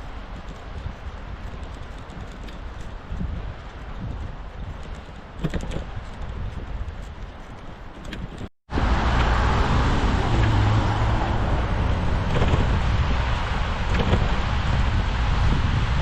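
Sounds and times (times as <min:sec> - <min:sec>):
passing cars traffic rumble: 0:07.3 - 0:16.0.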